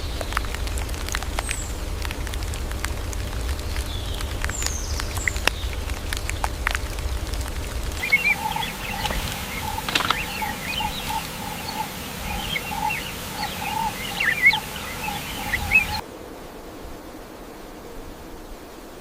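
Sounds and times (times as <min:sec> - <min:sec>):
birds calling low notes: 0:00.0 - 0:16.0
low rumble with clicks: 0:00.0 - 0:16.0
high bird chirps: 0:08.0 - 0:16.0.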